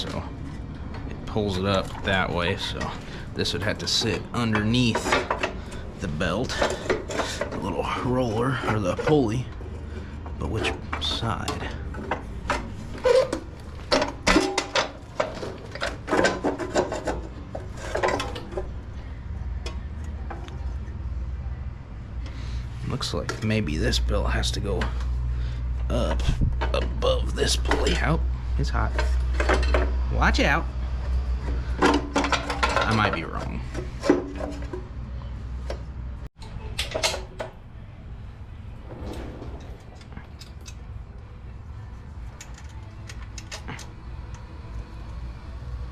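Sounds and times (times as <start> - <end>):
metal parts scraping and knocking: 0.0 - 20.9, 26.1 - 30.1, 31.4 - 34.8, 38.7 - 41.2
low steady rumble: 37.7 - 42.4.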